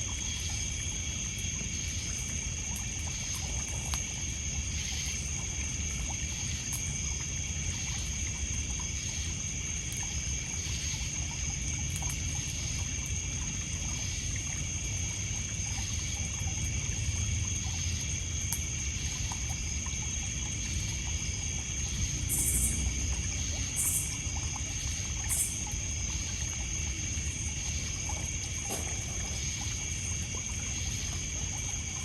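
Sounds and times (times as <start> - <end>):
crickets and insects trilling: 0.0 - 32.0
water lapping on pebbles: 17.4 - 32.0.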